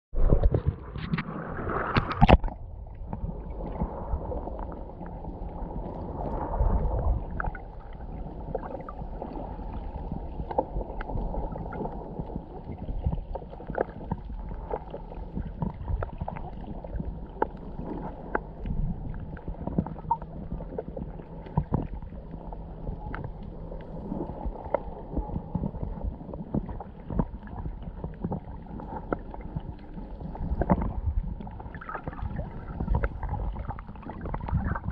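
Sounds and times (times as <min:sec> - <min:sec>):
muffled underwater water rush: 0:00.1 - 0:34.9
water splashing: 0:00.2 - 0:18.6, 0:23.9 - 0:34.9
small clicks and crackles: 0:07.2 - 0:34.9.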